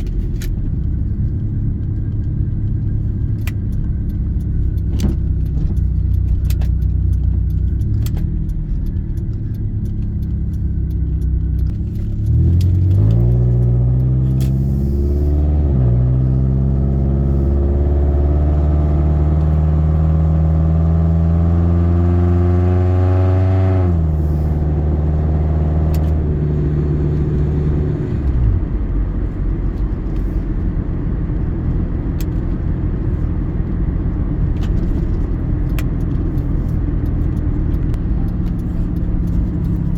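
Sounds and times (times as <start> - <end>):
car engine accelerating: 0.0 - 39.9
low road rumble: 0.0 - 39.9
light ticking rattles: 0.1 - 14.2.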